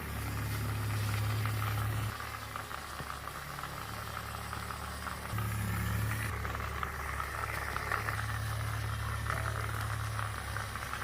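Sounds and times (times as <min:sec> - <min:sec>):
toy motor humming and rattling: 0:00.0 - 0:11.0.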